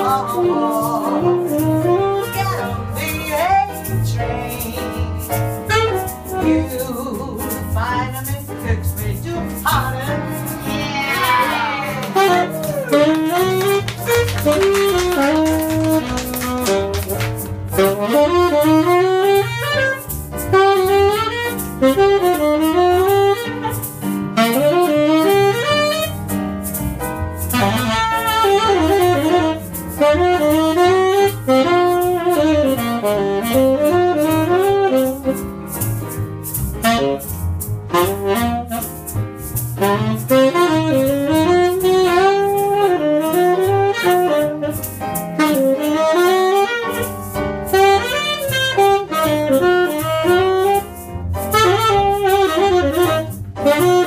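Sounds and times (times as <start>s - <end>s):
double bass: 0.0s - 54.0s
piano accompaniment: 0.0s - 54.0s
tenor saxophone jazz melody: 0.0s - 54.0s.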